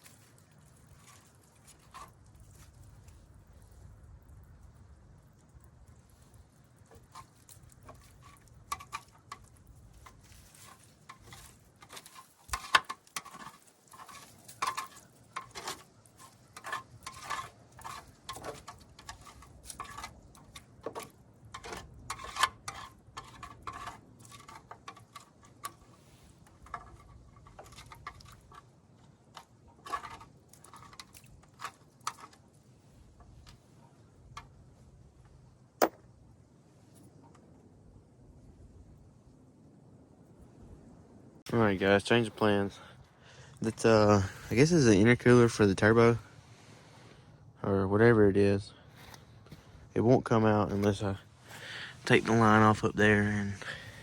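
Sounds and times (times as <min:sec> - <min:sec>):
hand tools clinking on metal: 0:07.1 - 0:28.7.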